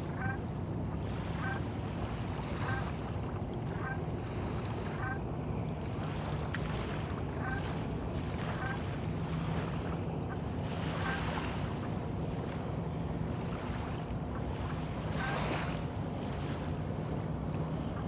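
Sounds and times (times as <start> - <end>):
small waves lapping: 0.0 - 18.0.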